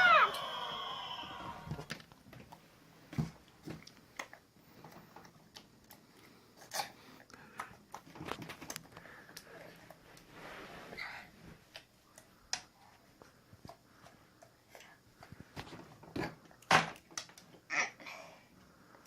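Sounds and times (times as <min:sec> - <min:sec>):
clicks and crinkles of handled objects: 0:01.9 - 0:10.3.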